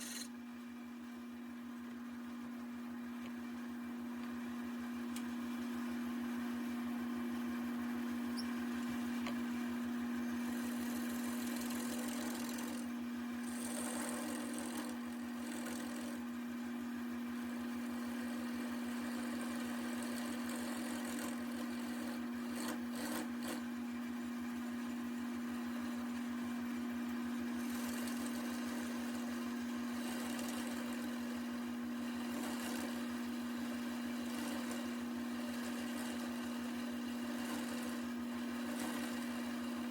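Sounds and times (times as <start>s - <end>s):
wood lathe motor hum: 0.0s - 0.3s, 8.4s - 39.9s.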